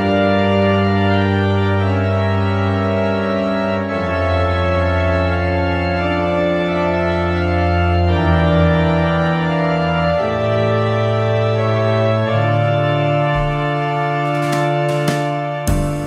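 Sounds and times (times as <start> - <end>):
sustained organ chords: 0.0 - 16.0
percussive hits: 13.4 - 16.0.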